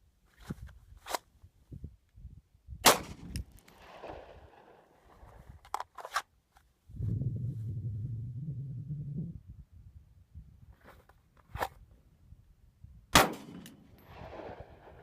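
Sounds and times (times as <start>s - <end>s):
pistol shot with echo: 2.8s - 4.6s, 13.1s - 15.0s.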